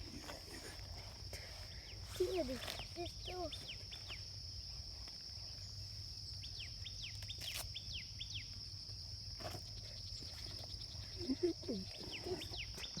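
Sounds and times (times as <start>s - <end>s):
high insect drone: 0.0s - 13.0s
bird chirping: 9.8s - 13.0s.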